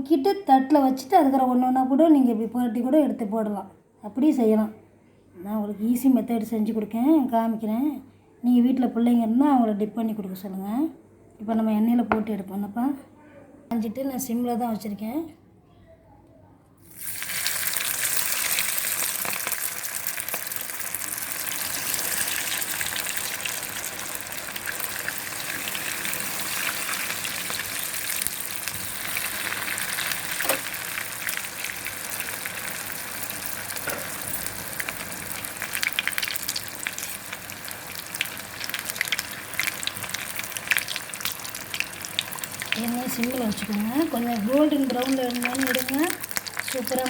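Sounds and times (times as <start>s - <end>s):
food deep-frying in oil: 16.8s - 47.0s.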